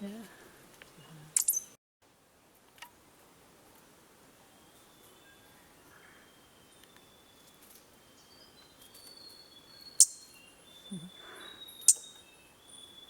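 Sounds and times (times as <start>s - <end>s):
birds whistling calls: 1.4s - 1.8s, 4.5s - 13.0s.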